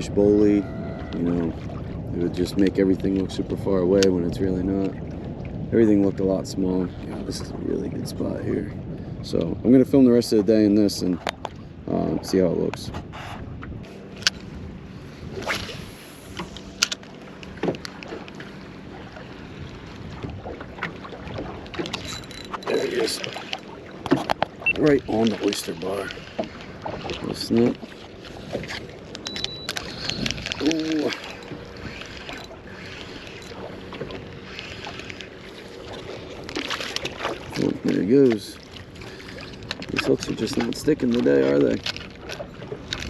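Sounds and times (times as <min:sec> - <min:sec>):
water lapping: 0:00.0 - 0:43.0
wind on microphone: 0:00.0 - 0:43.0.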